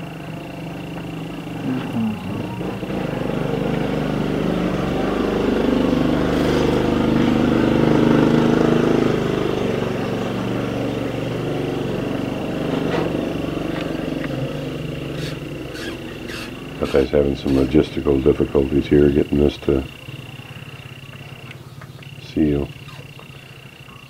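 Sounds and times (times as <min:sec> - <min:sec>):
thin high whine: 0:00.0 - 0:04.9
engine running: 0:00.0 - 0:24.0.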